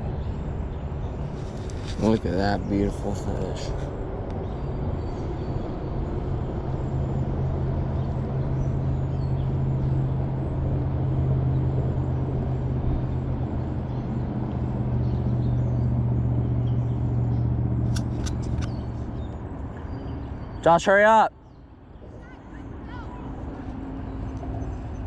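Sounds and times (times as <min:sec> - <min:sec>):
vehicle engine hum: 0:00.0 - 0:25.0
sharp clicks: 0:17.9 - 0:18.9.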